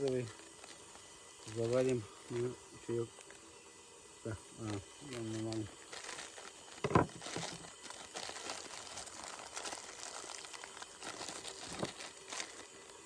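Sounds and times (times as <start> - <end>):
packaging crinkling and rustling: 0.0 - 1.9, 5.1 - 13.0.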